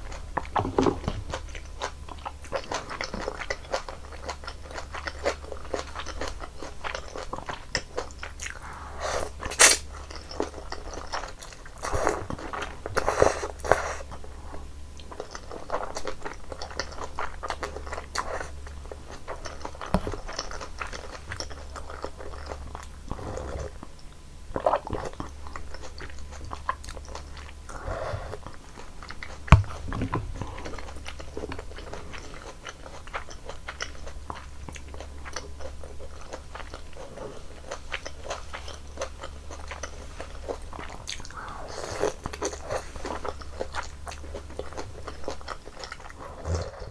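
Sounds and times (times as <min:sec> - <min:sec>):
wet chewing: 0:00.0 - 0:46.9
slurping noodles: 0:08.5 - 0:09.9.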